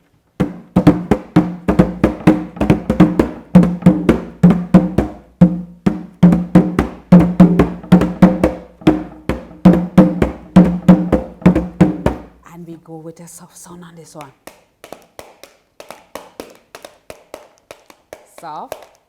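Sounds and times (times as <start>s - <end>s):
drum beaten in fast rhythm: 0.4s - 12.4s.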